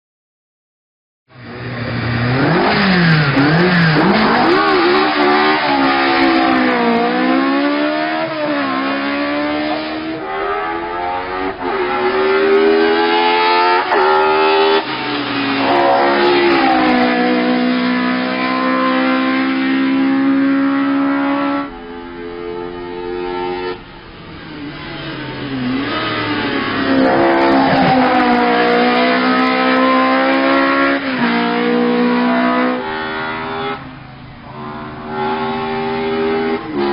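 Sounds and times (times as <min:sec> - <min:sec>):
race car engine revving: 0:01.3 - 0:36.9.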